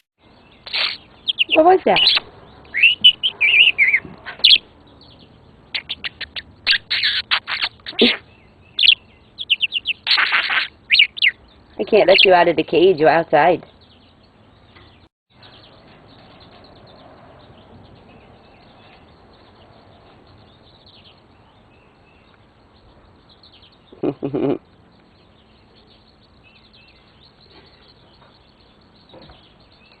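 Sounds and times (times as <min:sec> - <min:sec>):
high bird chirps: 0:00.0 - 0:12.3.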